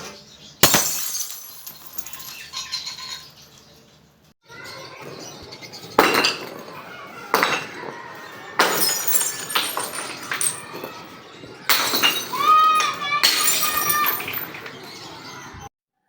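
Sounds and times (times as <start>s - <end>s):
tinkling glass shards: 0.6s - 3.3s, 8.6s - 10.8s, 11.7s - 14.6s
glass bottles shattering: 0.6s - 3.4s, 5.8s - 14.8s.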